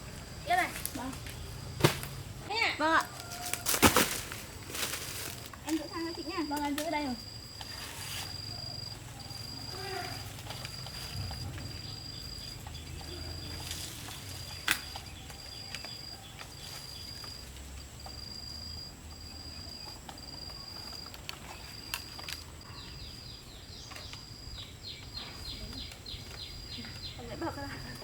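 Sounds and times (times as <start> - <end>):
insect trilling: 0.0 - 28.0.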